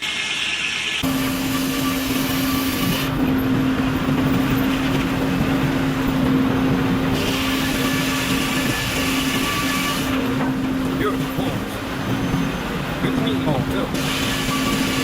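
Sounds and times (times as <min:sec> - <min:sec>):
circular saw humming: 0:01.0 - 0:13.0
mechanical rumble: 0:01.0 - 0:15.0.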